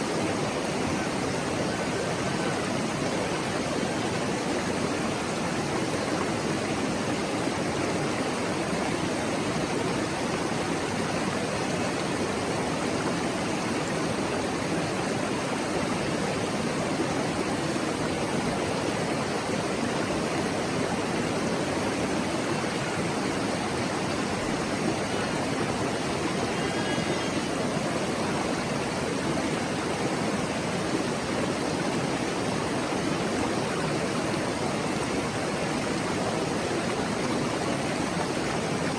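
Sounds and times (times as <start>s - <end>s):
mountain stream babbling: 0.0s - 38.9s.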